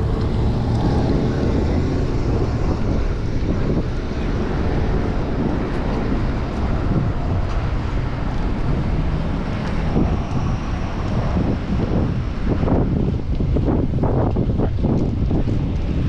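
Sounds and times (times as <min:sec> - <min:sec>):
city street traffic: 0:00.0 - 0:16.0
wind rumble on microphone: 0:00.0 - 0:16.0.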